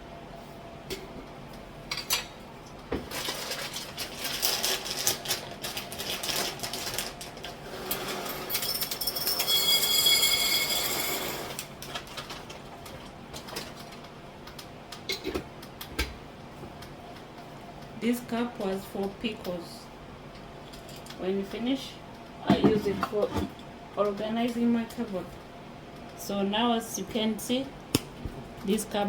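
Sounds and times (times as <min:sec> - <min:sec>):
jars clinking and rattling: 0:08.3 - 0:12.3.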